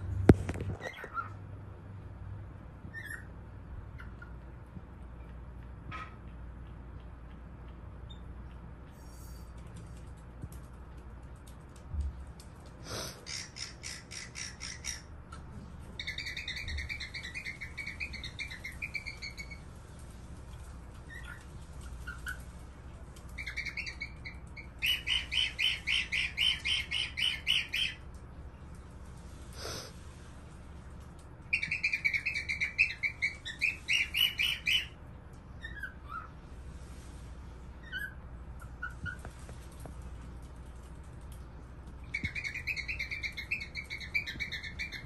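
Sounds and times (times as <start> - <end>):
cockatiel chirping: 0.8 - 1.3, 2.9 - 3.3, 13.3 - 15.1, 16.0 - 19.6, 23.4 - 28.0, 31.5 - 34.9, 35.6 - 36.3, 37.8 - 39.3, 42.1 - 45.0.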